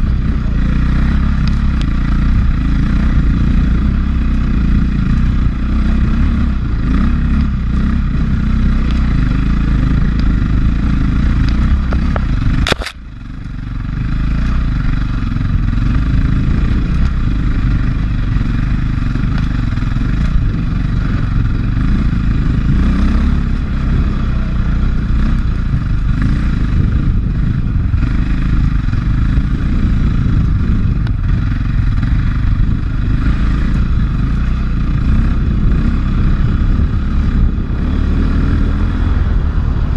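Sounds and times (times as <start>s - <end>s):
dirt bike engine running: 0.0s - 39.9s
sharp click: 11.4s - 13.0s.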